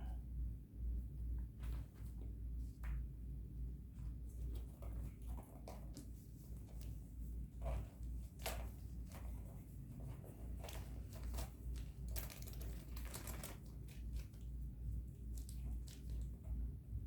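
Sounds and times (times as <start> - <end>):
low steady hum: 0.0 - 17.0
clicks and rustles of handling: 4.0 - 16.7.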